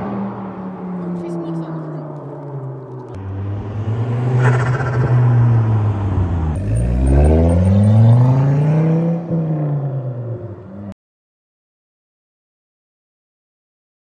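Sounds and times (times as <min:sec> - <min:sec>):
car engine revving through exhaust: 0:01.8 - 0:10.9.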